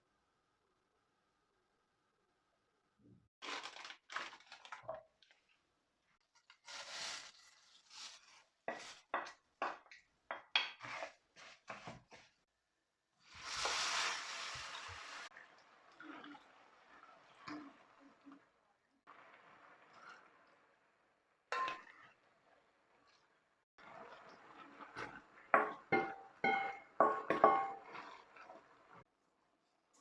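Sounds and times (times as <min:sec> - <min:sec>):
hiss: 0:13.3 - 0:15.3.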